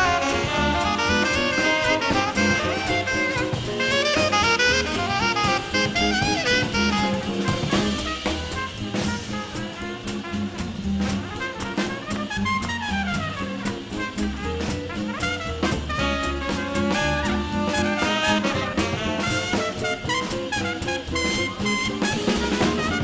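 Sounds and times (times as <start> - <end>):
drum kit with cymbals: 0.0 - 23.0
saxophone and brass: 0.0 - 23.0
walking upright bass: 0.0 - 23.0.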